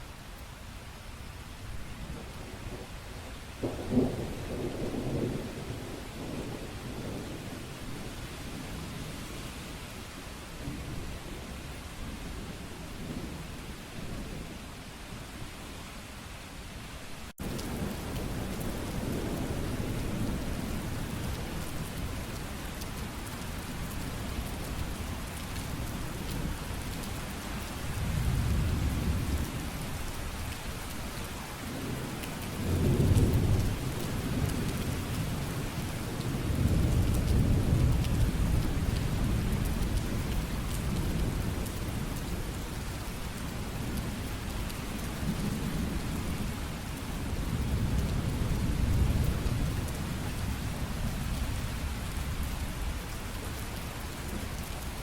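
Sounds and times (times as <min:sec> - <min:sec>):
heavy rainfall: 0:00.0 - 0:55.0
thunder rumbling: 0:03.6 - 0:08.1, 0:27.9 - 0:30.2, 0:31.7 - 0:44.4.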